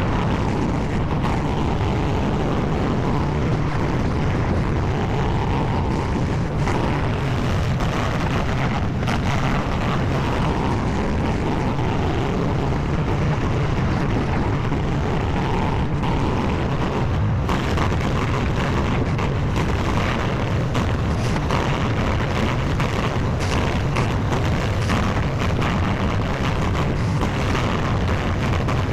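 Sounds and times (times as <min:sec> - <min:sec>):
loader engine running: 0:00.0 - 0:28.9.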